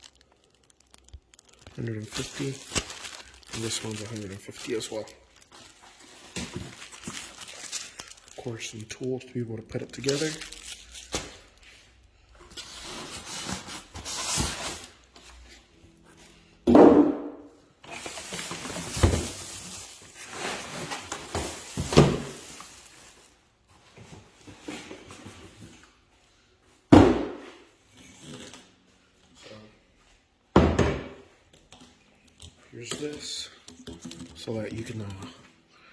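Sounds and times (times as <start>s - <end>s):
packaging rustling: 0.0s - 15.2s, 17.8s - 23.4s, 34.0s - 35.4s.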